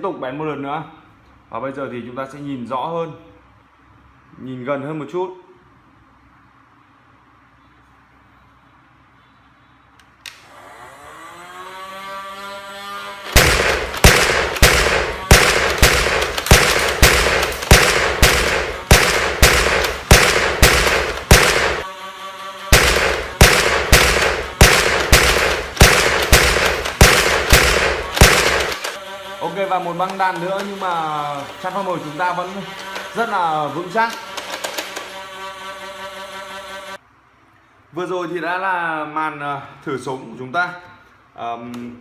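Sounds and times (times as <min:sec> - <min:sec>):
foam dart shots: 0:13.3 - 0:21.8, 0:22.7 - 0:29.0.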